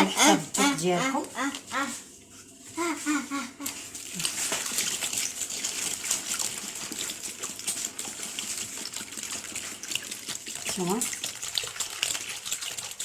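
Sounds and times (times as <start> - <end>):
water pouring into container: 3.8 - 13.0.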